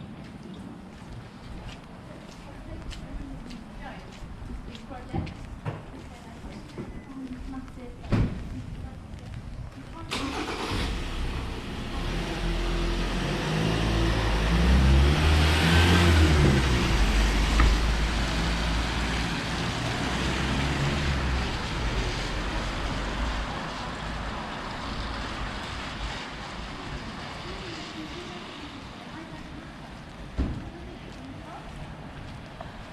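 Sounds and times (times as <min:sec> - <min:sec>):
vehicle passing by: 0:10.2 - 0:29.5.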